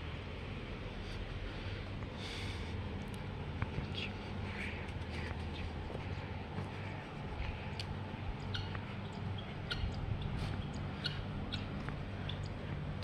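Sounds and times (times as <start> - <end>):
low machine hum: 0.0 - 13.0
birds chirping: 3.3 - 13.0.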